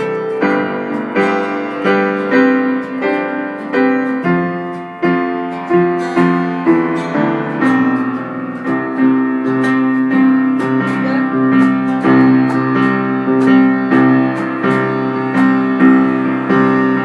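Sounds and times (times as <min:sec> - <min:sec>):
piano chords on keyboard: 0:00.0 - 0:17.0.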